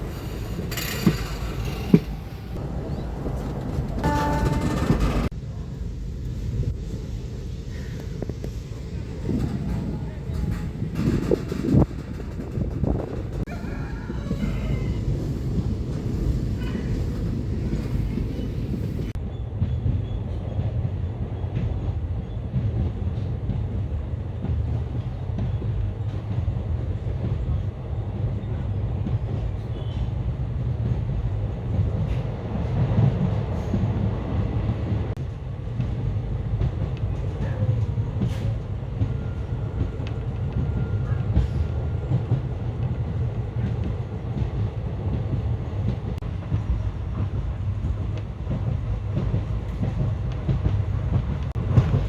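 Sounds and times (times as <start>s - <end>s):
train wheel clicks: 0.0s - 5.4s, 9.2s - 13.5s
train wheels rumbling on rails: 0.0s - 52.0s.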